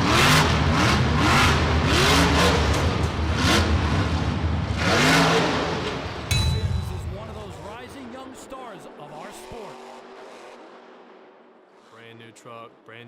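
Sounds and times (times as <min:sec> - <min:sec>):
monster truck engine revving: 0:00.0 - 0:06.2.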